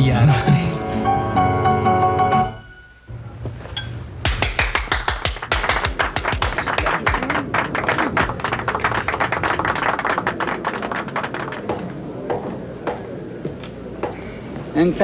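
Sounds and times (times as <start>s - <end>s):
sharp percussive taps: 4.2s - 13.0s
flamenco band music: 4.2s - 13.2s.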